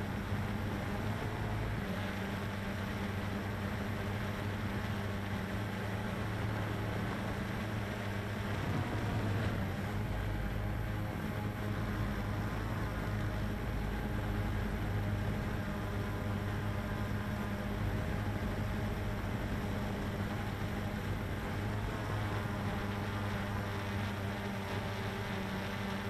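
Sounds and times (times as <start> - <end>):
quadcopter propellers droning: 0.0 - 26.0.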